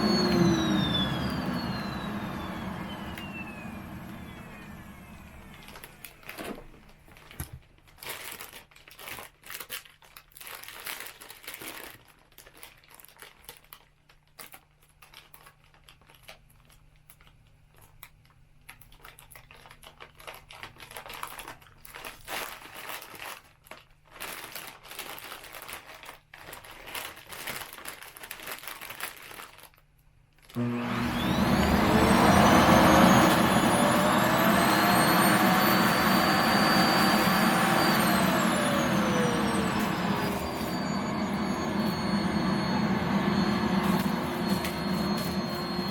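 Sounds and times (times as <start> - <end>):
vacuum cleaner motor whine: 0.0 - 7.0, 30.6 - 45.9
plastic bag crinkling: 5.6 - 18.0, 18.7 - 30.6.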